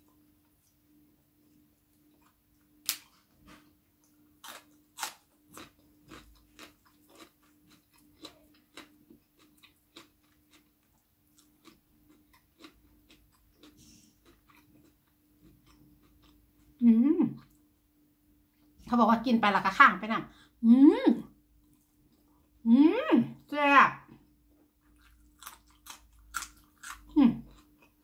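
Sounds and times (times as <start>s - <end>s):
faint steady hum: 0.0s - 28.0s
person chewing crunchy food: 1.4s - 16.8s, 24.8s - 28.0s.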